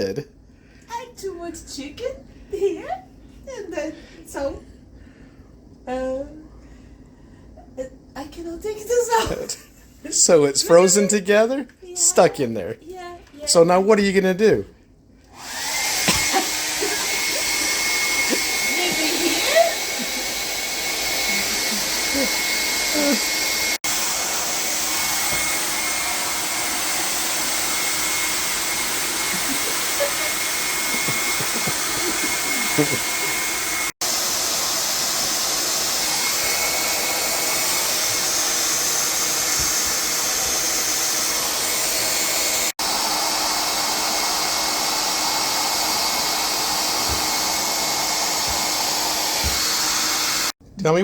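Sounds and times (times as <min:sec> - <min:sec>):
hair dryer blowing: 0:09.1 - 0:12.5, 0:15.2 - 0:50.6.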